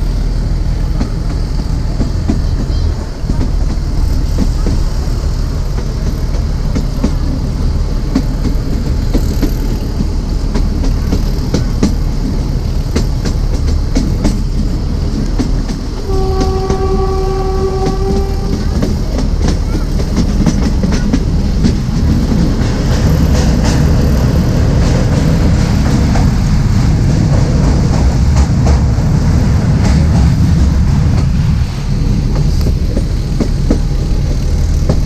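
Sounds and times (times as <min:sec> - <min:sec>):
train wheel rumble: 0:00.0 - 0:35.0
wheels clicking over rail joints: 0:00.0 - 0:35.0
locomotive horn blast: 0:16.0 - 0:19.0.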